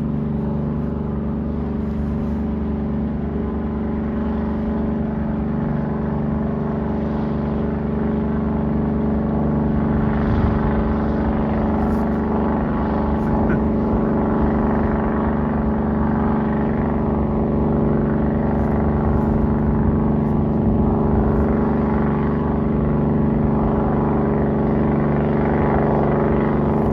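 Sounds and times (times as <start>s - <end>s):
diesel engine droning: 0.0s - 26.9s.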